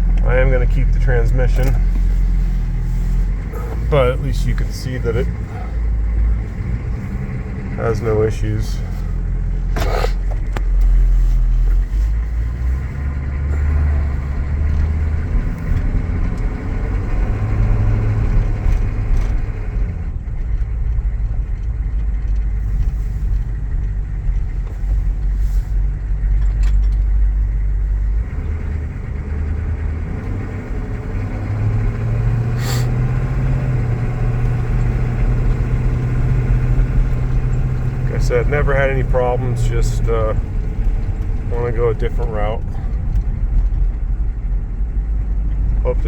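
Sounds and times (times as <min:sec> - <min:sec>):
diesel engine running while driving: 0:00.0 - 0:46.0.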